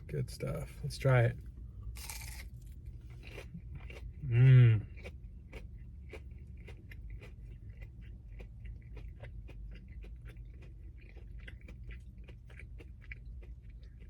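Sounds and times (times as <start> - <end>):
steady low hum: 0.0 - 14.0
close wet chewing: 3.0 - 14.0.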